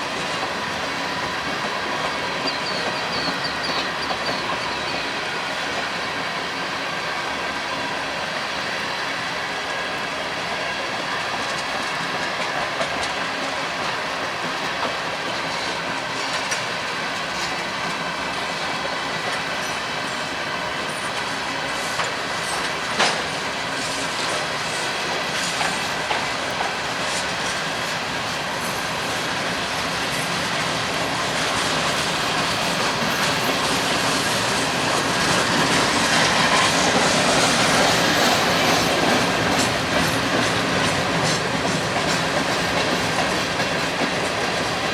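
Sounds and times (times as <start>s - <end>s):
train wheels clicking over rail joints: 0.0s - 6.7s, 9.5s - 44.9s
wheel squeal: 2.0s - 5.1s.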